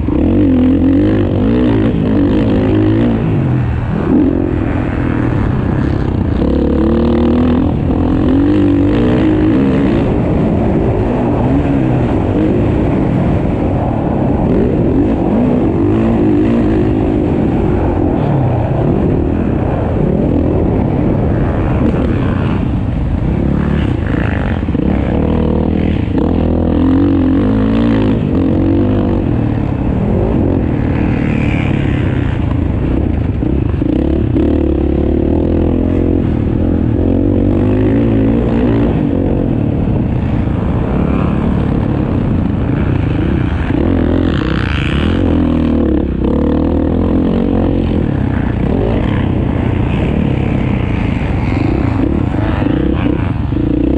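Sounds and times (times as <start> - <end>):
motocross motorcycle engine revving: 0.0 - 53.9.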